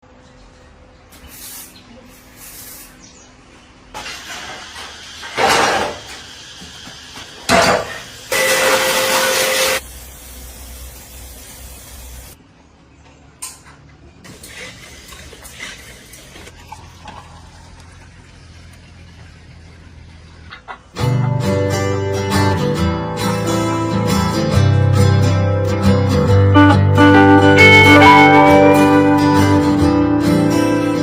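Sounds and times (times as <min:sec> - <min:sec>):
hissing spray bursts: 0:01.1 - 0:03.1, 0:04.0 - 0:12.4.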